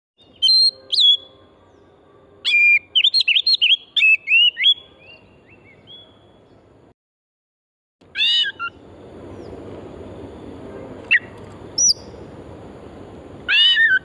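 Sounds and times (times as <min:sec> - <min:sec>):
bird singing whistled notes: 0:00.2 - 0:06.7, 0:11.1 - 0:12.2.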